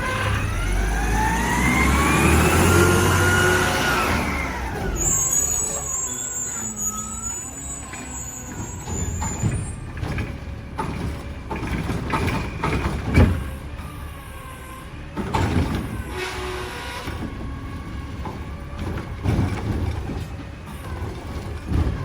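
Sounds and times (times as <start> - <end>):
wavering squeals: 0.0 - 9.9
garbage truck engine running: 0.0 - 22.0
clanks and bangs: 7.8 - 13.7, 15.2 - 22.0.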